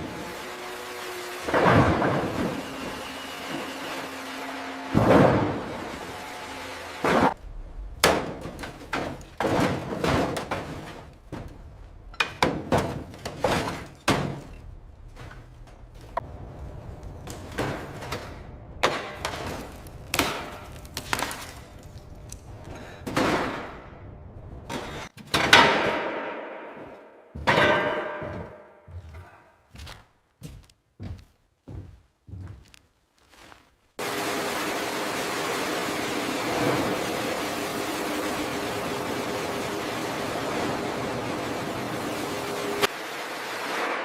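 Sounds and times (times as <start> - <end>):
heavy knocks and bangs: 4.9 - 6.1, 7.0 - 16.2, 22.9 - 29.3.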